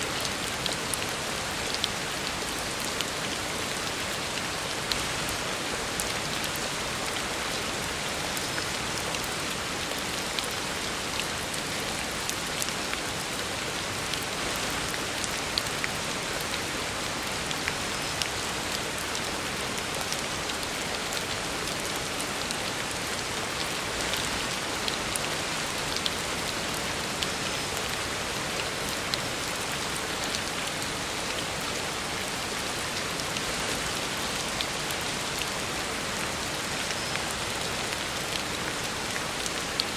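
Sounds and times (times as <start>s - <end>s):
heavy rain on a road: 0.0s - 39.9s.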